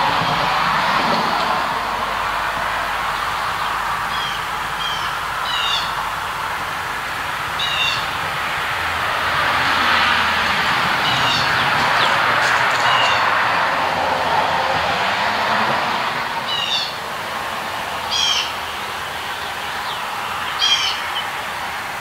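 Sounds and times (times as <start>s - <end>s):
steady rushing noise: 0.0s - 22.0s
birds chirping: 3.1s - 6.2s, 7.5s - 8.4s, 10.7s - 13.7s, 16.5s - 17.0s, 18.0s - 21.5s.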